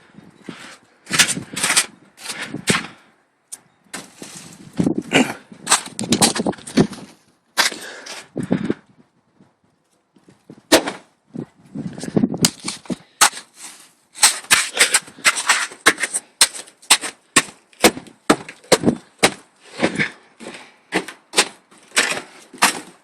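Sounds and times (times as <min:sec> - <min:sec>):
sharp crunches or knocks: 0:10.7 - 0:11.1, 0:12.4 - 0:20.1, 0:20.9 - 0:23.0.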